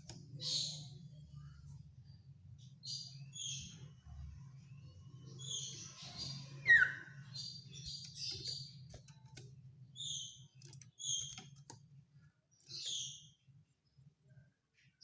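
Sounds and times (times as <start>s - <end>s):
faint clicks: 7.8s - 9.6s, 10.6s - 12.0s.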